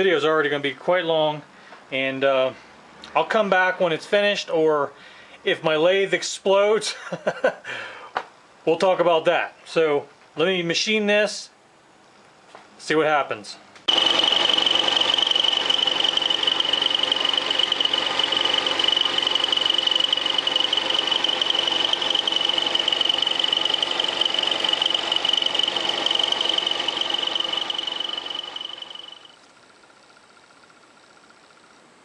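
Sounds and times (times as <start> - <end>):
milling cutter cutting metal: 13.9 - 29.3
high-pitched whine: 13.9 - 29.4
lathe machine hum: 13.9 - 29.4.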